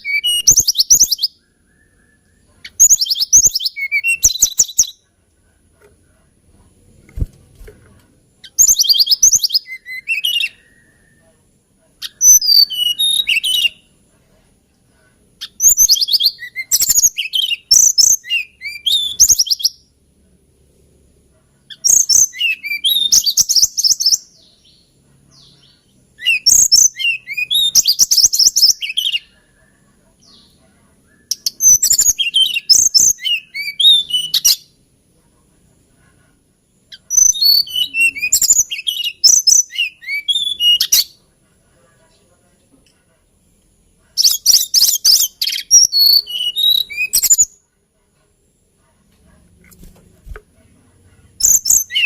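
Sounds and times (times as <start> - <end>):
bird warbling song: 36.9 - 41.2, 51.3 - 52.0.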